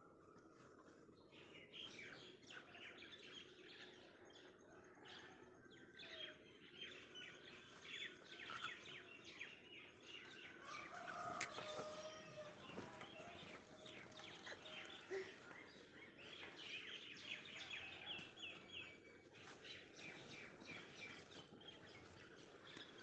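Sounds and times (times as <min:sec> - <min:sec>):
small birds chirping: 0:05.9 - 0:23.0.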